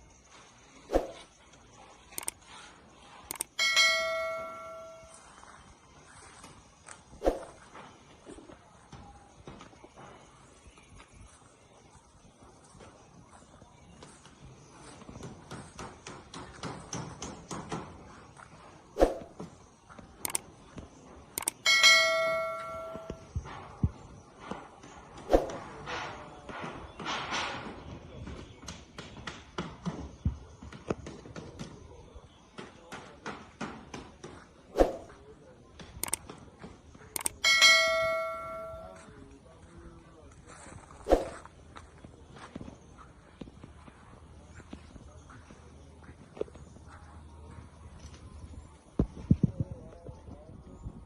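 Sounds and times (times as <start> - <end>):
metal object ringing like bell: 3.6 - 5.3, 21.6 - 23.4, 37.3 - 39.0
footsteps: 18.0 - 26.6, 34.8 - 35.3, 40.3 - 48.3.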